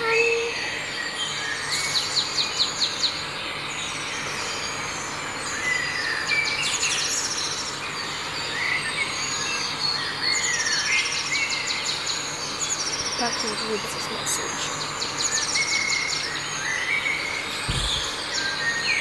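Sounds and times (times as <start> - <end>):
birds chirping and trilling: 12.4 - 19.0.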